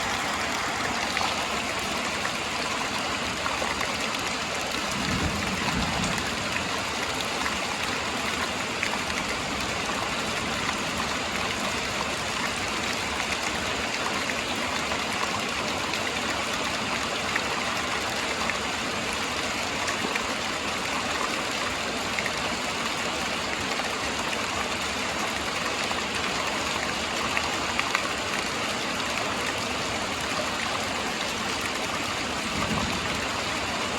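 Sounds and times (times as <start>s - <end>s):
steady rain with drop ticks: 0.0s - 33.9s
low rumble of thunder: 4.8s - 7.6s, 32.3s - 33.9s.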